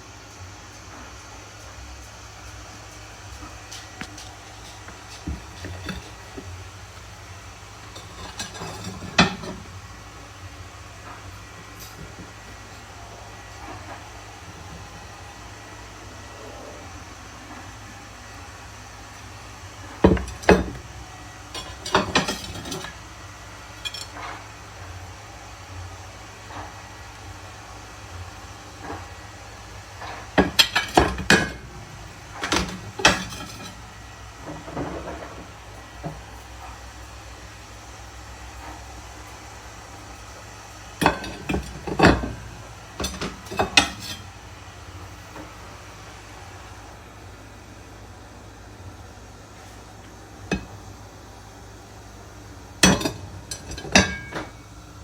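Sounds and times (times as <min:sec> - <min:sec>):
ceramic plates clinking: 0:04.0 - 0:06.6, 0:07.9 - 0:09.7, 0:20.0 - 0:21.0, 0:21.6 - 0:23.0, 0:30.4 - 0:31.7, 0:32.3 - 0:33.9, 0:41.0 - 0:44.4, 0:52.8 - 0:54.6.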